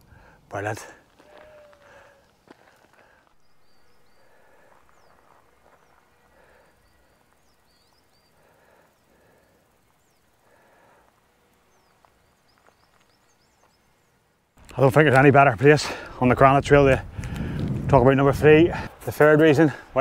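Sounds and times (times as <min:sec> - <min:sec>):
distant small birds chirping: 0:00.0 - 0:20.0.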